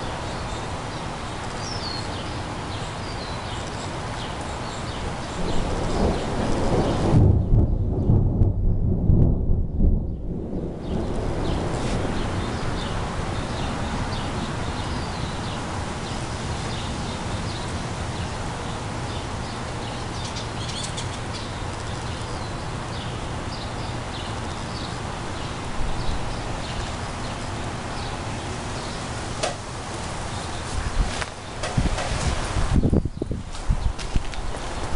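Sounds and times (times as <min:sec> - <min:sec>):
wind: 0:00.0 - 0:34.9
thunder rumble: 0:05.1 - 0:19.4.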